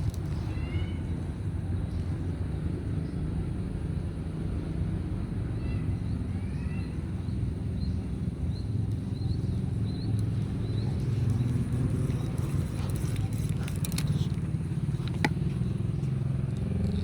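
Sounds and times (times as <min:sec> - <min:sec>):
low outdoor rumble: 0:00.0 - 0:17.0
small bird chirping: 0:06.4 - 0:17.0.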